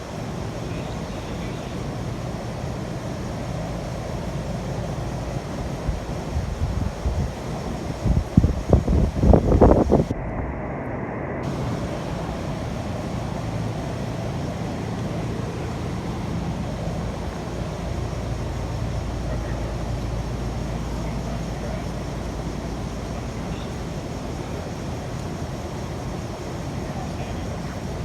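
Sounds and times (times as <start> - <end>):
engine droning: 0.0 - 28.0.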